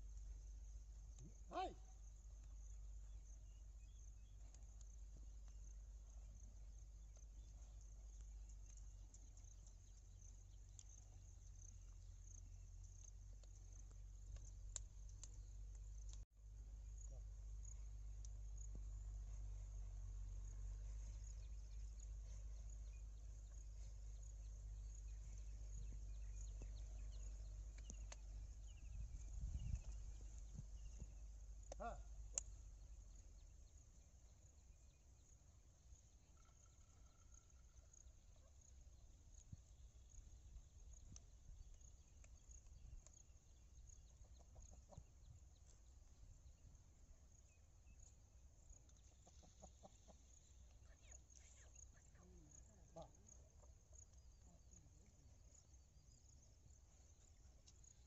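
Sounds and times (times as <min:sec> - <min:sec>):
small birds chirping: 0:00.0 - 0:58.0
steady low rumble: 0:02.1 - 0:33.8
faint bird calls: 0:36.2 - 0:38.6, 0:48.9 - 0:55.1.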